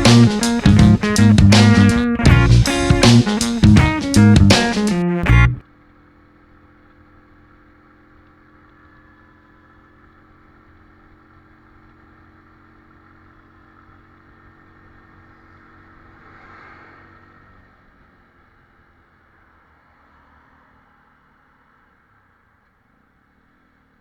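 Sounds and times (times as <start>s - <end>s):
faint motorcycle engine running: 0.0s - 15.9s.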